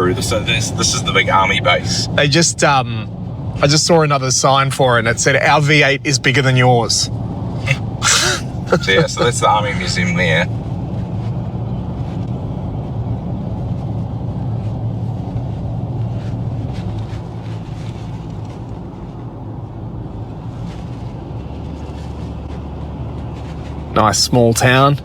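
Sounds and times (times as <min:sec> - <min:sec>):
car road and engine drone: 0:00.0 - 0:24.0.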